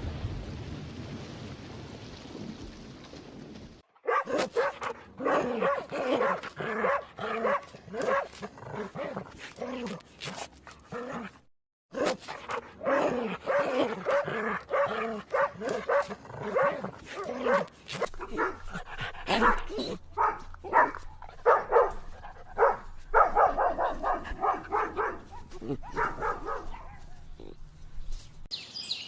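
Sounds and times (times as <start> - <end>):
dog barking: 4.0 - 9.2, 11.9 - 27.6.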